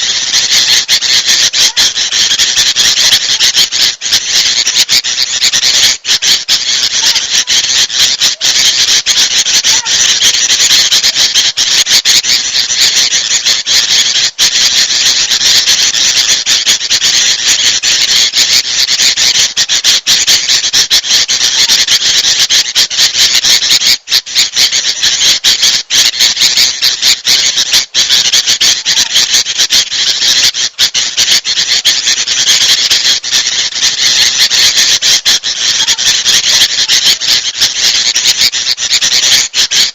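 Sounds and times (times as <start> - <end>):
bulbuls chattering: 0.0 - 39.9.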